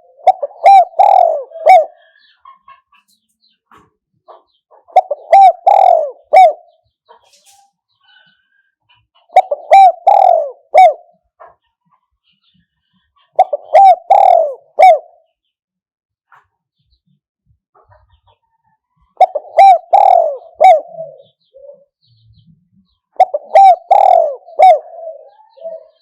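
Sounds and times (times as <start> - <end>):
dove cooing: 0.0 - 2.4, 4.8 - 6.8, 9.2 - 11.2, 13.3 - 15.2, 19.1 - 26.0.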